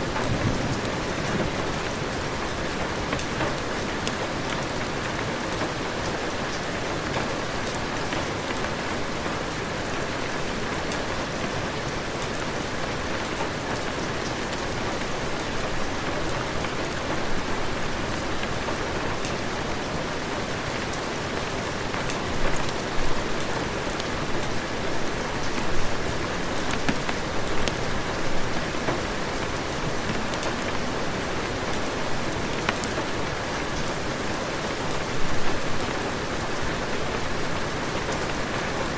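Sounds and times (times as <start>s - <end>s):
raindrops ticking: 22.0s - 33.9s.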